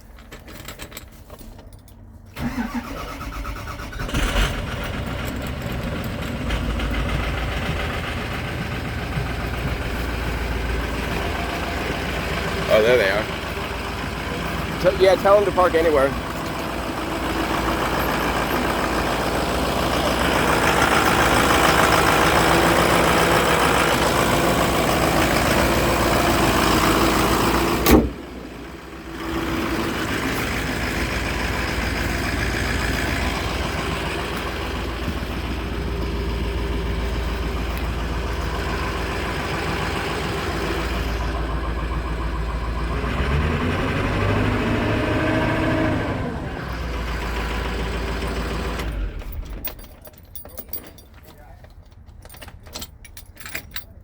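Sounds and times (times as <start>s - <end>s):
truck engine running: 1.9s - 54.0s.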